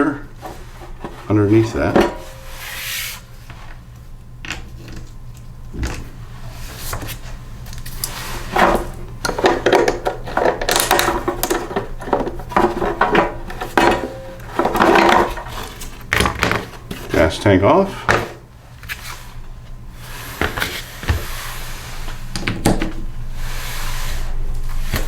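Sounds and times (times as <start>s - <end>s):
tools and parts scraping and clattering: 0.4s - 3.8s, 6.7s - 17.3s.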